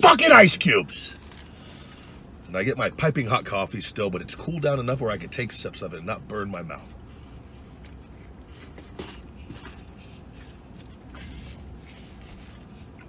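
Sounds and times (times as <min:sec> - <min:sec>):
quiet chewing: 0:07.1 - 0:13.0.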